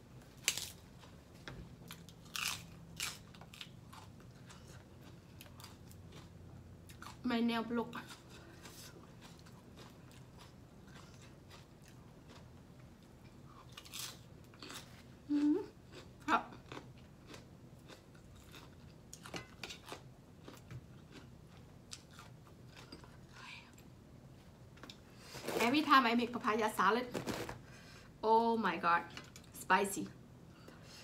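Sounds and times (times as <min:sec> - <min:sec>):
chewing and crunching salad: 0:00.4 - 0:23.9.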